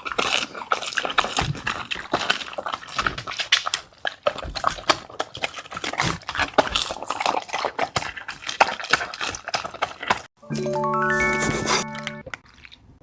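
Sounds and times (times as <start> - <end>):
dog chewing and smacking: 0.0 - 10.3.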